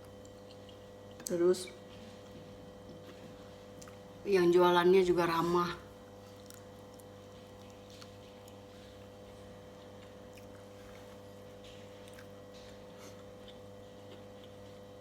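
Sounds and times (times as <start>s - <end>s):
quiet chewing: 0.0s - 4.2s, 6.2s - 15.0s.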